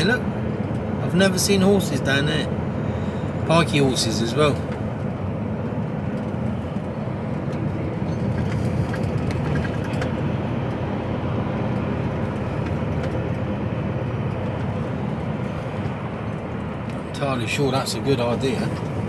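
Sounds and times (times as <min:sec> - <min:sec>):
lorry engine and road rumble: 0:00.0 - 0:19.0.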